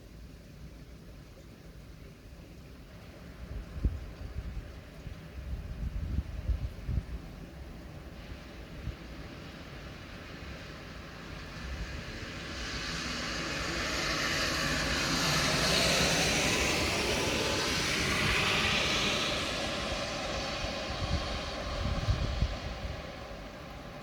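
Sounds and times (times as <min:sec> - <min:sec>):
vehicle passing on wet road: 0:08.0 - 0:24.0.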